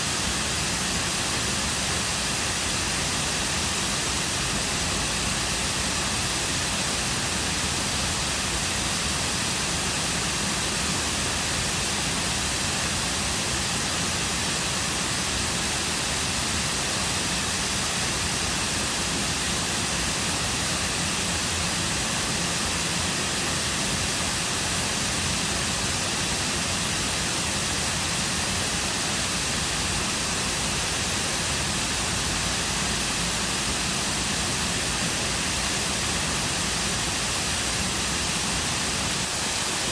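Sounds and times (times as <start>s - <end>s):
waterfall rushing water: 0.0s - 39.9s.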